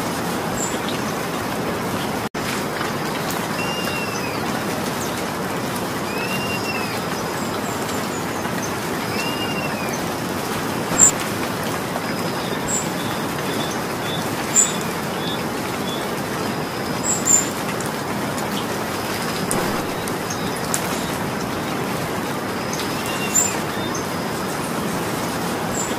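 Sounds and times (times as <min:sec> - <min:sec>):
steady rain falling: 0:00.0 - 0:25.9
birds calling and chirping: 0:03.5 - 0:05.2, 0:06.0 - 0:11.2, 0:11.9 - 0:21.9, 0:22.5 - 0:24.5
sharp taps of raindrops: 0:10.9 - 0:12.0, 0:19.2 - 0:21.5.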